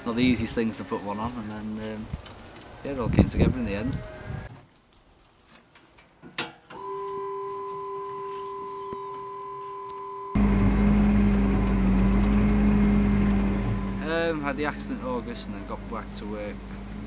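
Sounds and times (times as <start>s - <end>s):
tractor engine droning: 10.2s - 17.0s
steady mechanical whine: 10.3s - 17.0s.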